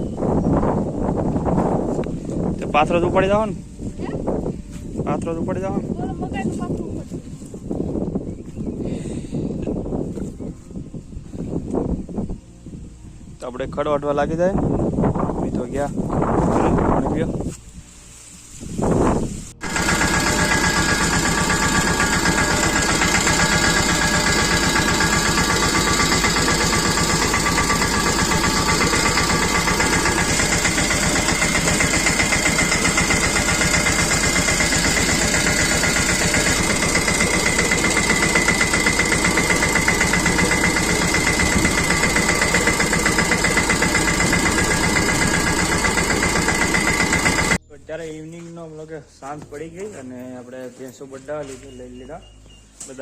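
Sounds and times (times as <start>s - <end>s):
chaff-cutting machine running: 19.6s - 47.6s.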